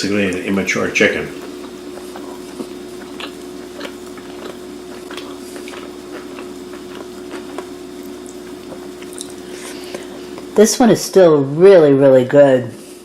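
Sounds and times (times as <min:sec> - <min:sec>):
steady low hum: 0:00.0 - 0:13.0
person chewing food: 0:01.3 - 0:10.6.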